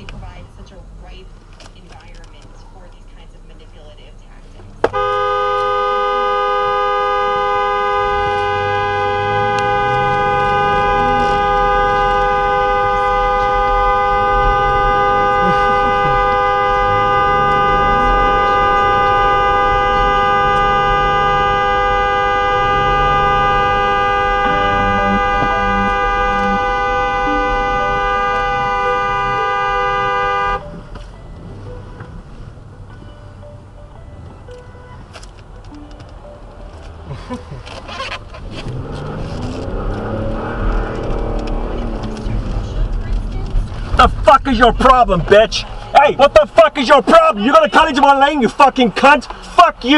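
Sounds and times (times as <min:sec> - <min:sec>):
car horn held down: 0:04.8 - 0:31.0.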